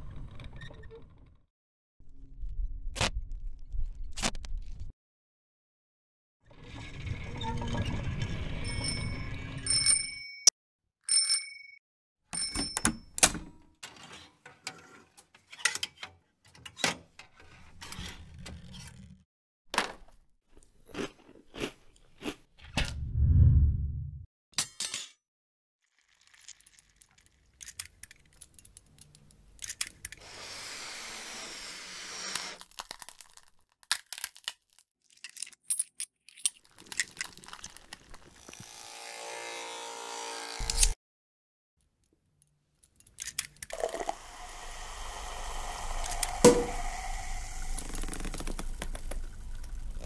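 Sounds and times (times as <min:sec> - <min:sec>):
low hum: 0:22.9 - 0:24.2, 0:44.0 - 0:49.8
hiss: 0:30.2 - 0:32.6, 0:44.0 - 0:48.8.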